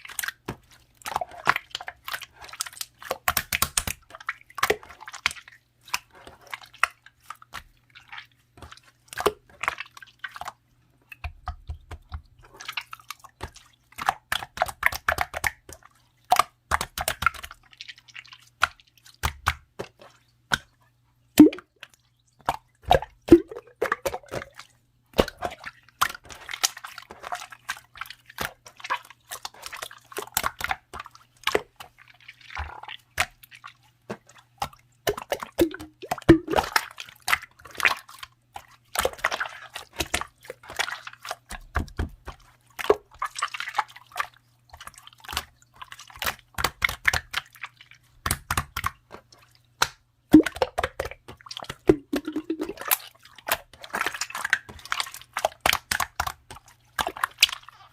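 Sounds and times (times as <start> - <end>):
slime squishing and popping: 3.2 - 4.0, 21.4 - 21.7, 35.1 - 36.9, 49.8 - 53.0.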